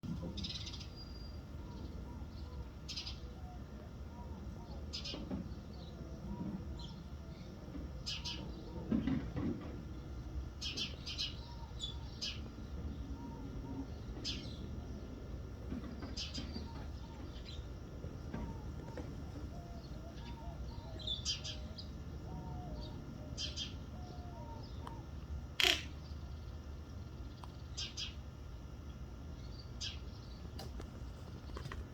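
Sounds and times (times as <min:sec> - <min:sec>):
faint bird chirps: 0:18.4 - 0:26.6
roadrunner rasping calls: 0:25.6 - 0:26.1.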